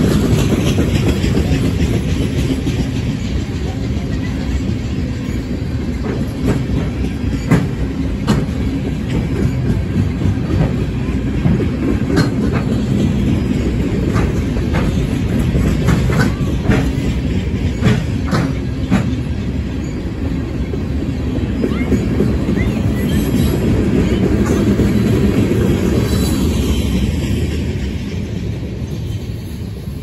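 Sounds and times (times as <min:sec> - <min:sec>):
train wheels rumbling on rails: 0:00.0 - 0:30.0
sharp clicks and clanks: 0:05.9 - 0:19.6.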